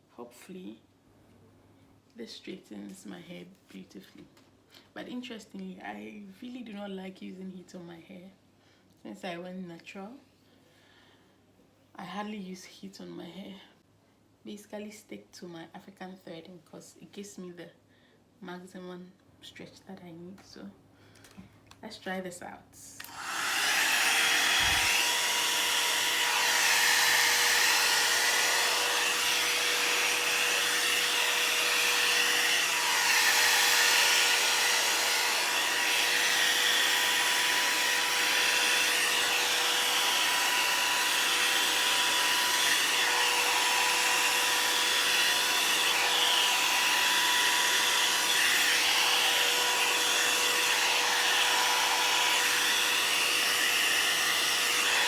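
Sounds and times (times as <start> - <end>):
hot-air brush fan whine: 23.0 - 55.0.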